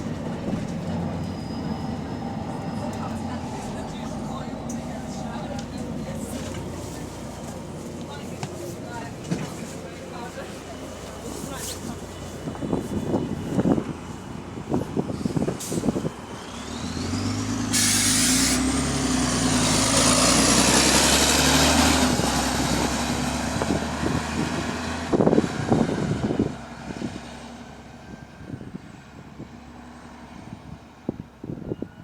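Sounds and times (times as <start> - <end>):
bus diesel engine pulling away: 0.0 - 32.0
short air hiss: 17.7 - 18.6.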